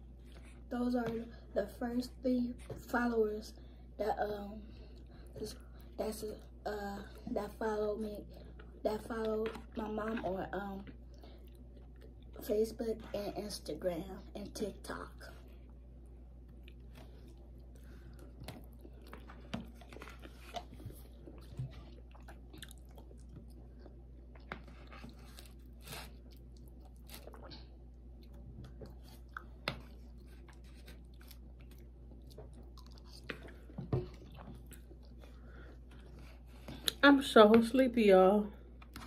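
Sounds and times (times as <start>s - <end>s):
people chewing food: 0.0s - 1.5s, 4.6s - 13.1s, 14.8s - 37.0s.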